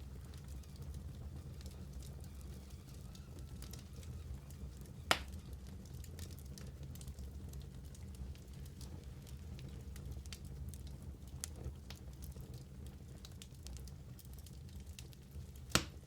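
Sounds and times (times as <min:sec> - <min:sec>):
wood fire crackling: 0:00.0 - 0:16.0
fire loud sharp pop: 0:05.1 - 0:05.3, 0:15.7 - 0:16.0.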